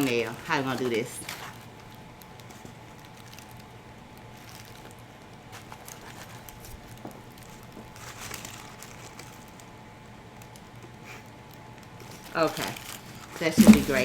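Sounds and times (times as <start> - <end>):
handling clicks and rustles: 0.0 - 9.7, 10.4 - 14.0
faint steady hum: 0.0 - 14.0.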